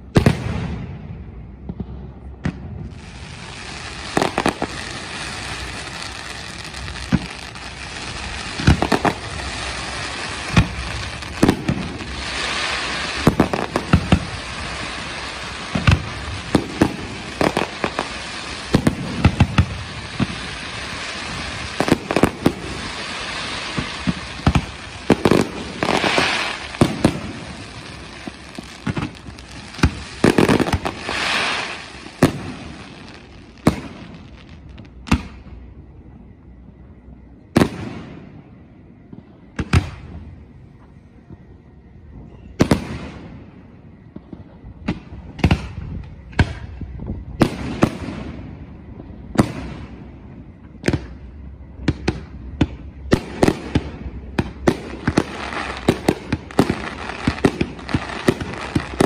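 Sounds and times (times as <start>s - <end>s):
firework hiss and crackle: 0.0s - 36.8s, 37.4s - 59.0s.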